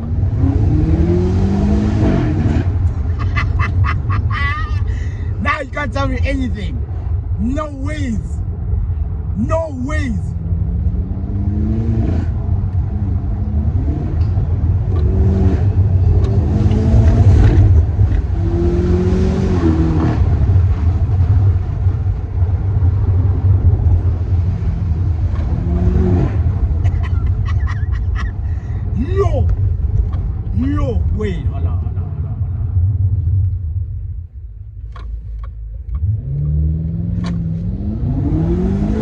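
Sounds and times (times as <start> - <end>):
car engine accelerating hard: 0.0 - 4.3, 10.3 - 28.2, 35.9 - 39.0.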